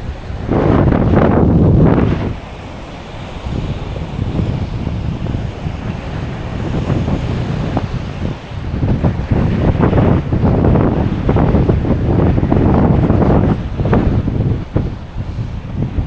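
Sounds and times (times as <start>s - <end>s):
surf washing on a beach: 0.0s - 16.0s
wind buffeting the microphone: 0.0s - 16.0s.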